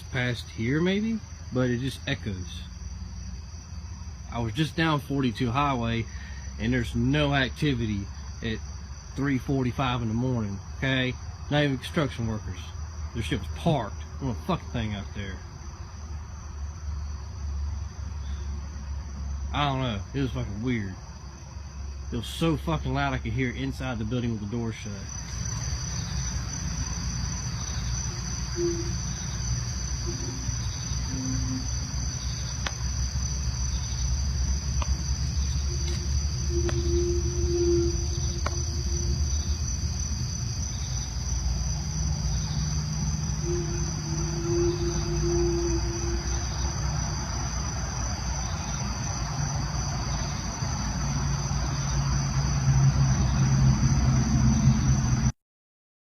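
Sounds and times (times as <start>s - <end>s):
crickets chirring: 0.0s - 55.4s
drawn-out low tone: 23.2s - 48.1s.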